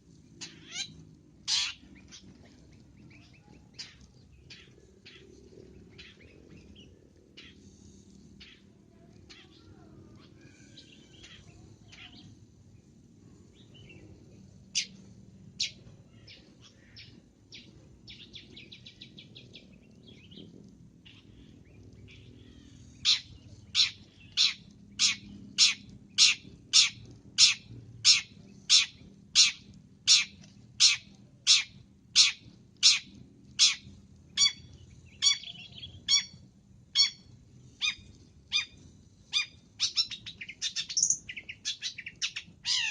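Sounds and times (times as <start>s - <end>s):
bird sharp repeated calls: 0.4s - 2.2s, 23.8s - 36.4s, 37.0s - 37.2s
bird chirps and trills: 0.4s - 12.9s, 13.5s - 42.9s.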